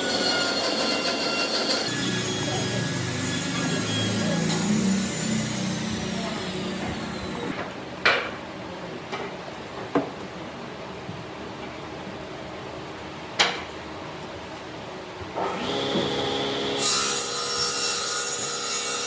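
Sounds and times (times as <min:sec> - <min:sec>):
power tool whining down: 0:00.0 - 0:07.5, 0:15.4 - 0:16.8.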